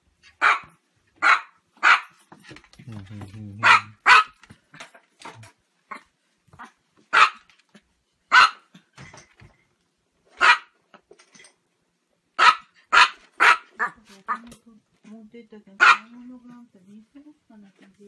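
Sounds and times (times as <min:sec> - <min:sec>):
small dog barking: 0:00.4 - 0:02.2, 0:03.6 - 0:04.4, 0:06.6 - 0:07.5, 0:08.3 - 0:08.7, 0:10.4 - 0:10.8, 0:12.4 - 0:14.4, 0:15.8 - 0:16.2.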